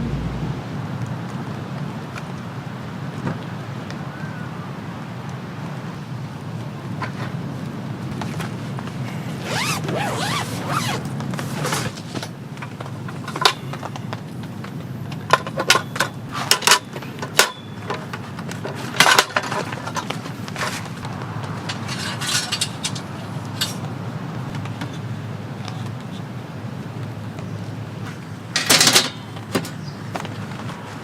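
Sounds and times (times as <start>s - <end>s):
metal cookware clinking: 28.6s - 29.3s.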